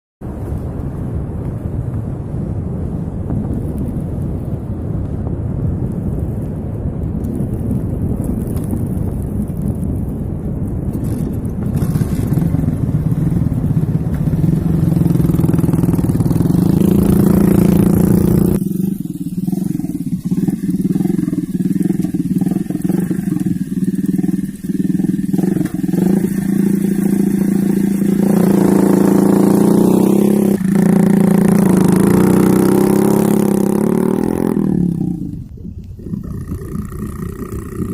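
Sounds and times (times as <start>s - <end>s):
low rumble: 0.2s - 37.9s
motorbike engine running: 7.3s - 35.5s.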